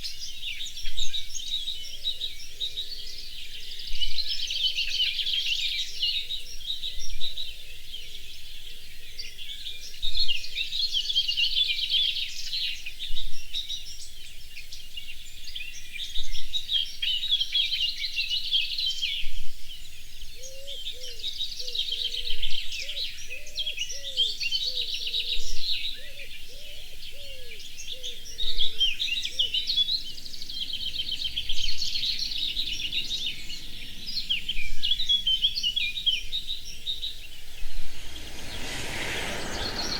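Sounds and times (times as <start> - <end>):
songbirds chorus: 15.0 - 39.9.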